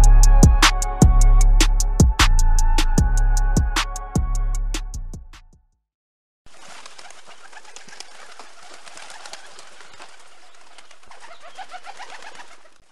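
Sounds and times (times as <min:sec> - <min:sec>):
birds chirping: 0:06.5 - 0:12.9.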